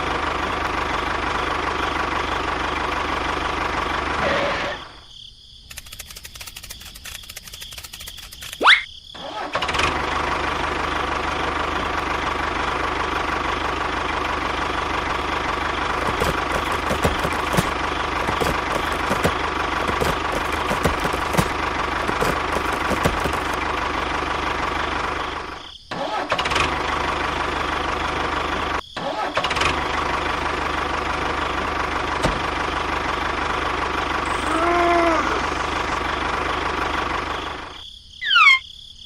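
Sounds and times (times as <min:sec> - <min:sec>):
motor running: 0:15.7 - 0:23.8.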